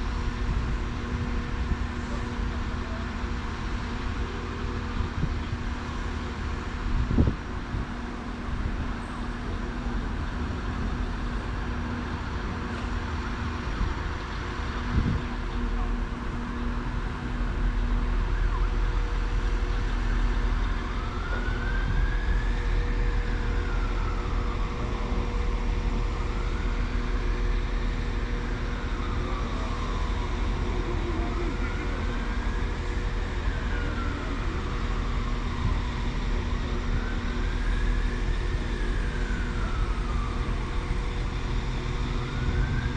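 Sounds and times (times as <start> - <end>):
siren wailing: 16.4 - 42.9.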